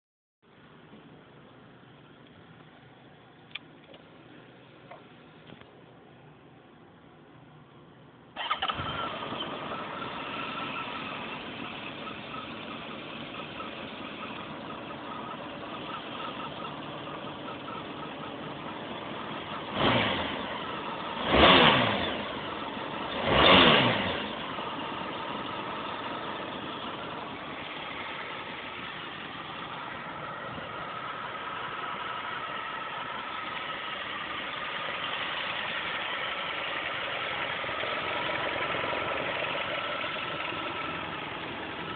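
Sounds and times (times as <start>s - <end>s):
engine idling: 0.5s - 41.9s
motorcycle engine starting: 8.3s - 41.9s
engine revving: 8.4s - 41.9s.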